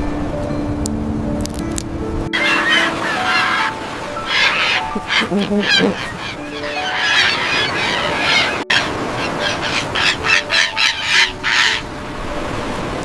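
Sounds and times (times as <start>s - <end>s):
gull squawks: 2.4s - 11.9s.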